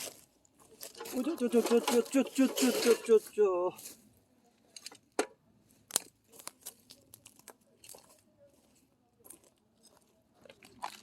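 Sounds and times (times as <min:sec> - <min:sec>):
light crunches and clicks: 0:04.6 - 0:08.2.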